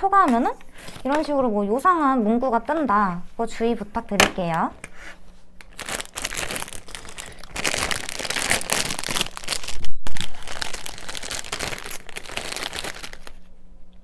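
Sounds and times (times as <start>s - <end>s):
plastic wrapper crinkling: 5.6s - 13.5s.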